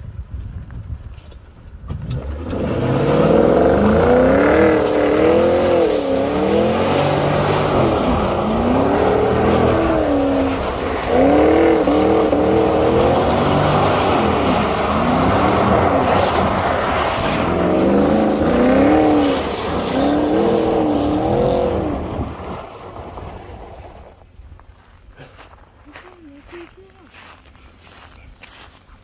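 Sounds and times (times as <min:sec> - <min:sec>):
car engine revving hard: 0:02.0 - 0:22.8.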